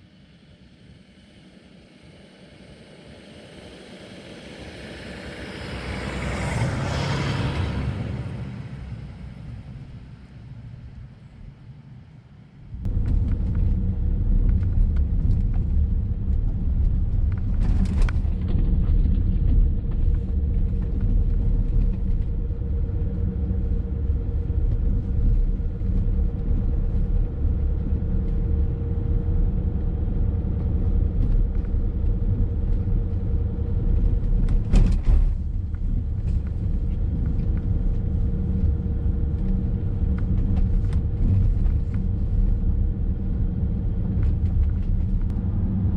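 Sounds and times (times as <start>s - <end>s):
car engine and tyres rumbling: 0.0s - 45.9s.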